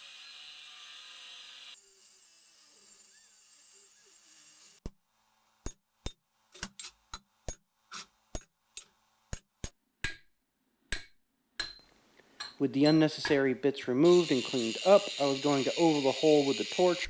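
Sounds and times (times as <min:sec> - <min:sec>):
hammer striking steel: 0:05.6 - 0:10.3, 0:10.9 - 0:12.6.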